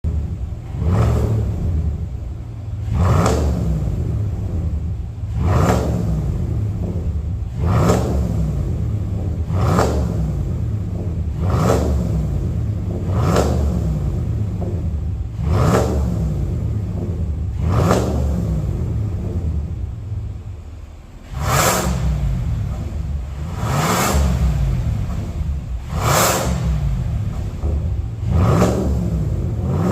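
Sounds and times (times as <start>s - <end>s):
car engine idling: 0.0s - 29.9s
engine revving: 0.0s - 29.9s.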